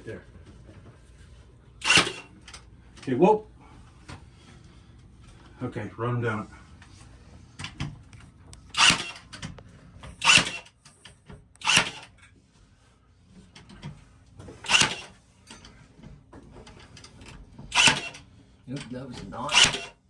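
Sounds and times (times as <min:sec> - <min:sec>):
brad nailer firing: 0:01.8 - 0:02.4, 0:08.7 - 0:09.4, 0:10.2 - 0:10.7, 0:11.6 - 0:12.1, 0:14.6 - 0:15.2, 0:17.7 - 0:18.2, 0:19.5 - 0:20.0.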